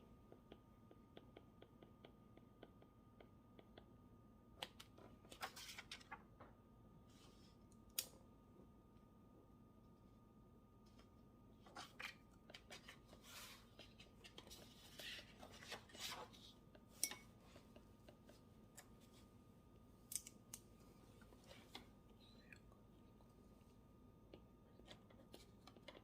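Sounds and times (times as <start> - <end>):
scratching and rustling strokes: 11.6 - 16.8.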